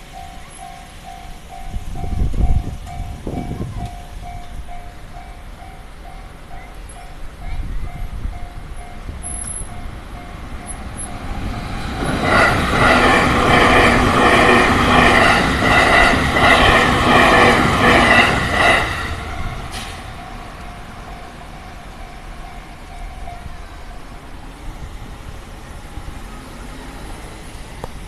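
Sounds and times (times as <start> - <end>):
level crossing warning bell: 0.0 - 11.5, 17.3 - 24.4
electric train passing: 0.0 - 28.0.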